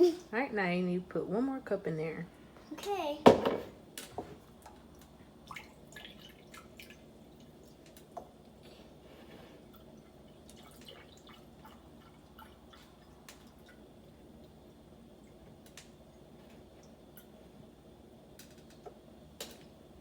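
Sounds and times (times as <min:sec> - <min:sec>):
liquid trickling into cup: 0:05.4 - 0:08.0, 0:09.6 - 0:13.9.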